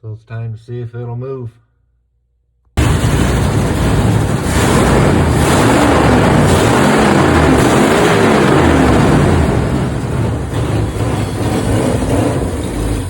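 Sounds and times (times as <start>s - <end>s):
truck engine running: 2.8s - 13.0s.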